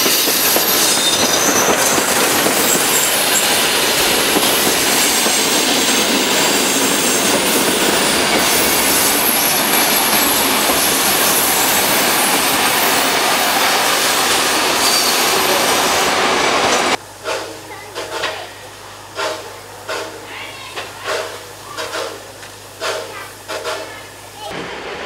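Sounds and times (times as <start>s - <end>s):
high wheel squeals: 0.0s - 16.9s
train wheels rumbling on rails: 0.0s - 25.0s.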